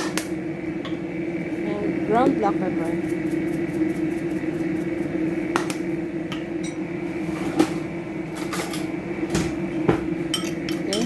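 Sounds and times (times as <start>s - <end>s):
steady low hum: 0.0s - 11.0s
kitchen utensils clicking and knocking: 10.3s - 11.0s.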